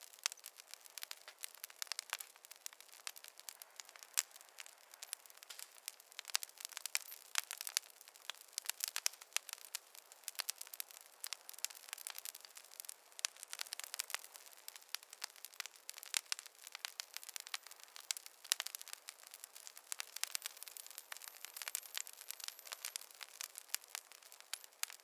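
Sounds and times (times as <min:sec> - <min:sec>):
campfire crackling: 0:00.0 - 0:25.0.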